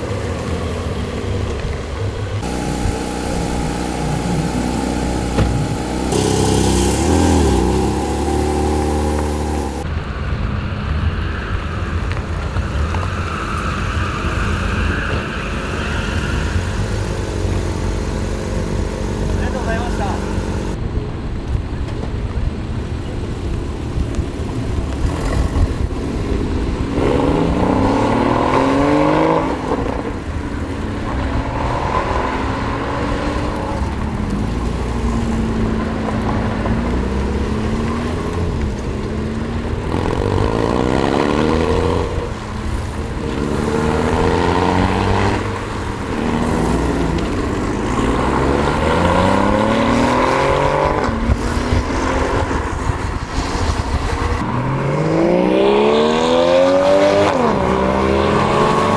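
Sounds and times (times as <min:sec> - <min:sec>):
steady engine rumble: 0:00.0 - 0:28.0
sports cars revving past: 0:02.4 - 0:09.9, 0:26.7 - 0:58.9.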